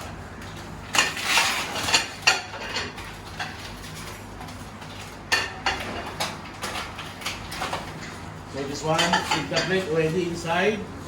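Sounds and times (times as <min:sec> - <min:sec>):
plates and cutlery clattering: 0:08.8 - 0:09.9.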